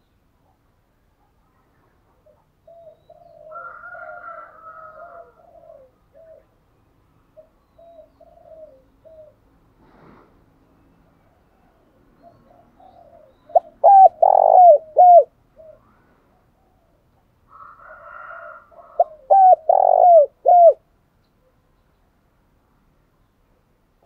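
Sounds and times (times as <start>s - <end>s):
dove cooing: 2.2s - 6.5s, 7.4s - 9.4s, 11.3s - 17.0s, 17.6s - 20.8s.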